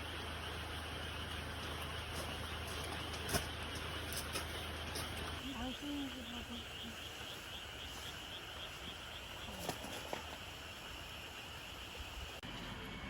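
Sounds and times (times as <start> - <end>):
insect chirping: 0.0 - 12.4
outdoor hiss: 5.5 - 13.0.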